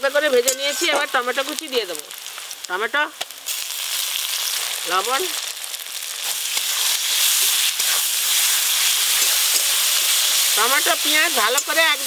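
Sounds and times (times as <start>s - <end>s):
tomatoes sizzling in hot oil: 0.0s - 12.0s
metal spatula scraping pan: 0.3s - 1.2s.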